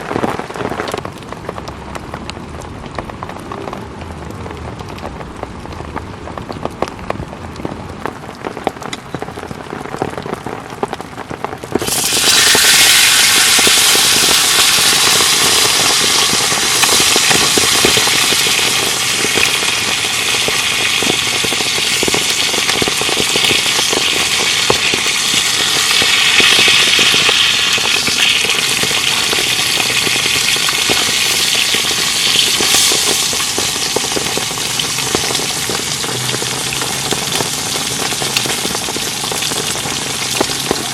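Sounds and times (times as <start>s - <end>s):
rain pattering: 0.0s - 40.9s
steak sizzling in a pan: 11.8s - 40.9s.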